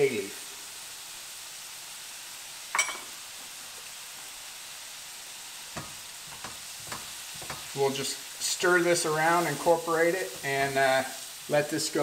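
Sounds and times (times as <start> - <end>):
onion and garlic sizzling: 0.0 - 12.0
sharp clink: 2.8 - 3.1.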